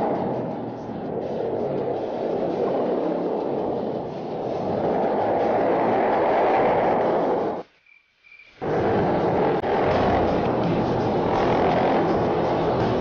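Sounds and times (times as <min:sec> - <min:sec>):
pit bike engine running: 0:08.6 - 0:13.0.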